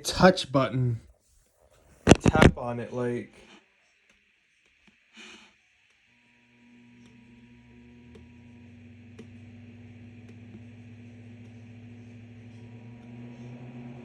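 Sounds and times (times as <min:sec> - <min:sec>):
humidifier fan humming: 0:06.2 - 0:14.0.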